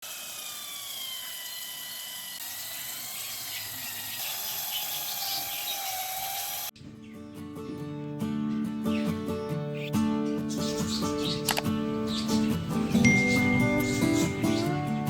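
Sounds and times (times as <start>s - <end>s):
small machine motor whining: 0.0s - 6.8s.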